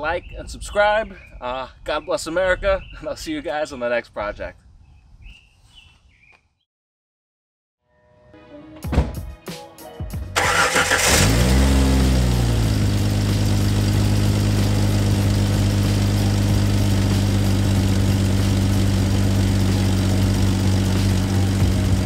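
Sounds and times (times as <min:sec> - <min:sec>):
car engine starting and idling: 0:10.4 - 0:22.0.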